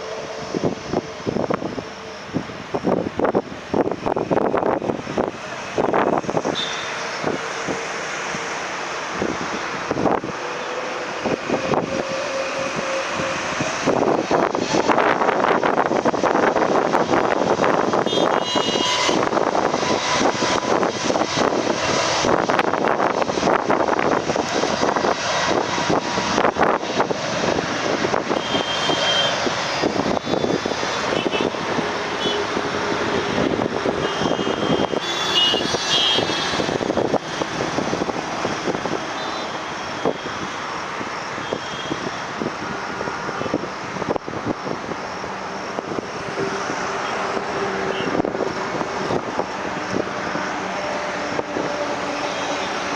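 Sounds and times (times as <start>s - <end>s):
jet airliner engine rush: 0.0s - 52.9s.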